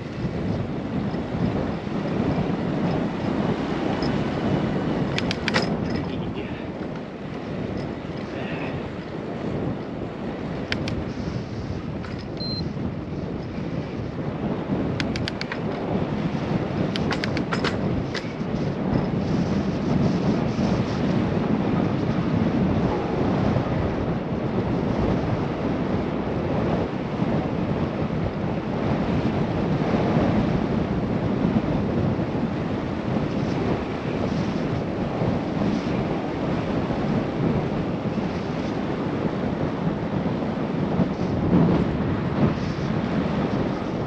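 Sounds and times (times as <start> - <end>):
wind rushing on microphone: 0.0 - 44.0.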